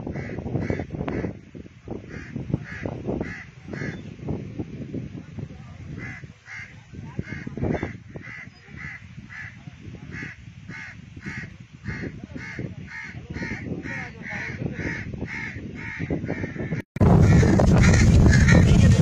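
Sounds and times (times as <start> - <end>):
low rumble: 17.0 - 19.0.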